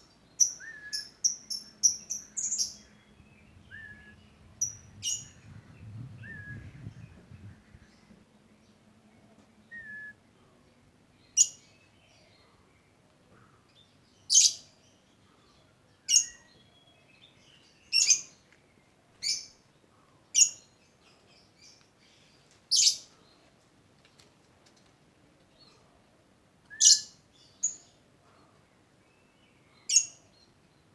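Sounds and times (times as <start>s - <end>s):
bird shrill chirps: 0.4s - 3.0s.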